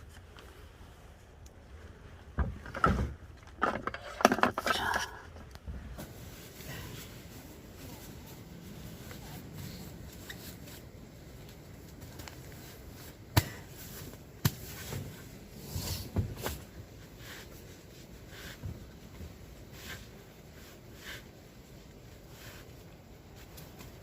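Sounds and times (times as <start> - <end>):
small objects knocking and rustling: 2.4 - 5.4.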